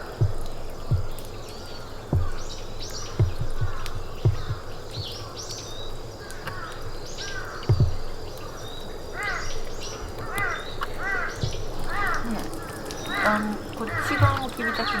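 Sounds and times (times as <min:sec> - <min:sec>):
dull low thumps: 0:00.0 - 0:05.9, 0:07.6 - 0:08.4, 0:11.3 - 0:15.0
harsh repeated bird calls: 0:00.0 - 0:15.0.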